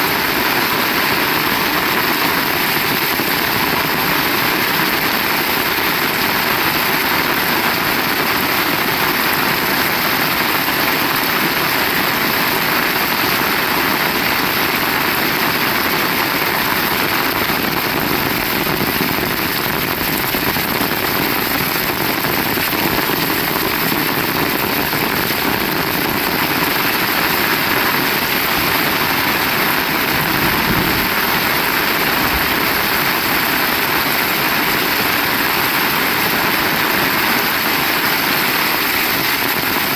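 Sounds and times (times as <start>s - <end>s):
heavy rain falling: 0.0s - 39.9s
short low rumble: 29.1s - 33.6s.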